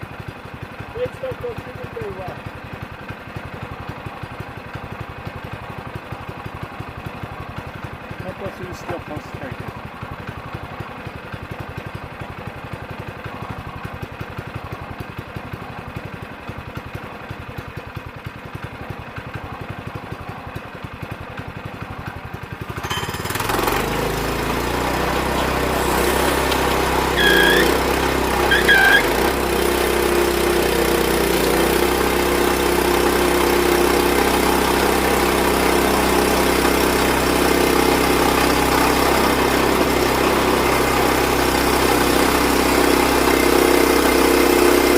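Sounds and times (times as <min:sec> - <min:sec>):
gas engine running: 0:00.0 - 0:44.9
short high squeaks: 0:25.4 - 0:29.2.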